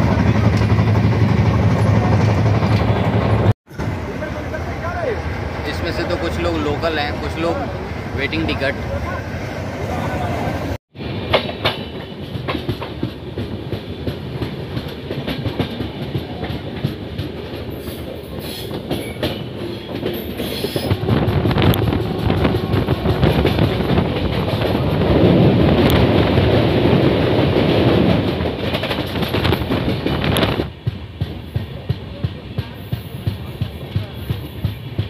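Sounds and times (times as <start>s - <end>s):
train wheels clattering over rail joints: 11.2s - 35.0s.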